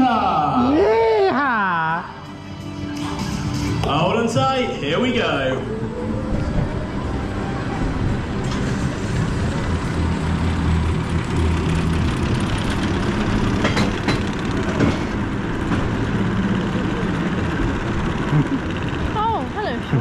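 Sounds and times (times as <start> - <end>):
roller coaster rumbling on track: 3.8 - 20.0.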